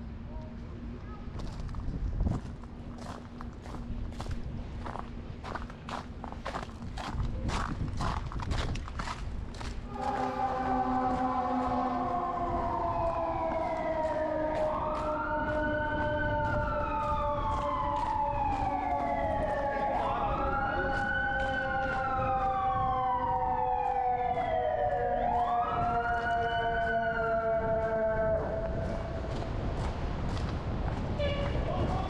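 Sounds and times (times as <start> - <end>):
low sliding tone: 9.9 - 17.0
emergency siren wailing: 9.9 - 30.0.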